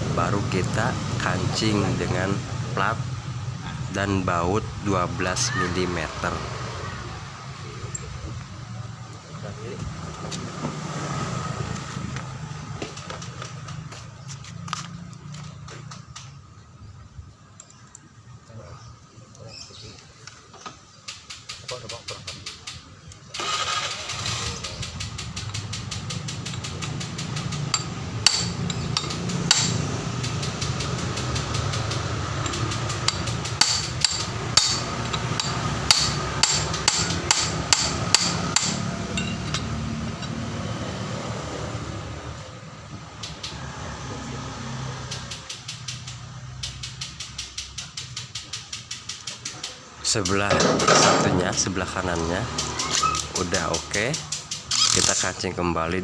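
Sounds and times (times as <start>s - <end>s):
rapid metallic tool clicking: 24.4s - 38.8s, 45.1s - 50.5s, 52.5s - 55.3s
sharp metal knocks: 24.7s - 40.4s, 45.0s - 51.7s.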